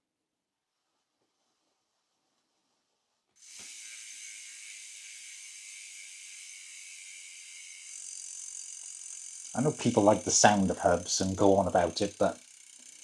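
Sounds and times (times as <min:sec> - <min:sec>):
bicycle freewheel ratchet clicking: 0:03.4 - 0:13.0.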